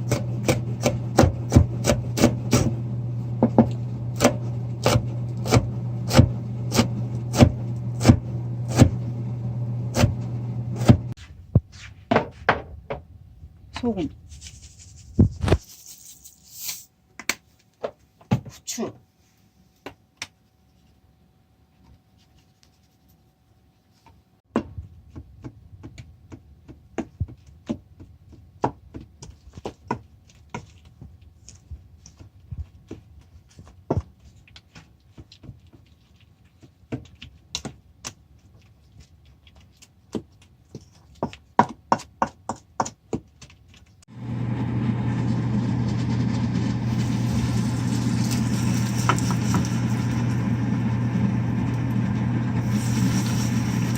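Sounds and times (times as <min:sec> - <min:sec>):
kitchen appliance motor humming: 0:00.0 - 0:11.1, 0:44.1 - 0:53.9
knife chopping on cutting board: 0:00.1 - 0:02.7, 0:03.4 - 0:09.0, 0:09.9 - 0:10.2, 0:10.8 - 0:11.1.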